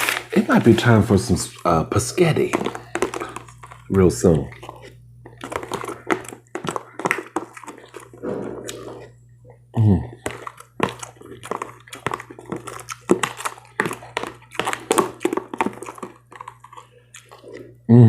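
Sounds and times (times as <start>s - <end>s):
chewing crunchy cereal: 0.0s - 17.9s
low hum: 8.0s - 11.8s.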